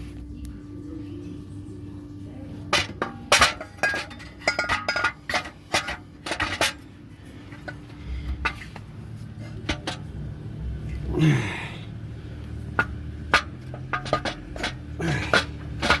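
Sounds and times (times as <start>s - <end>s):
steady low hum: 0.0s - 16.0s
metal clinking: 2.7s - 6.8s, 12.8s - 16.0s.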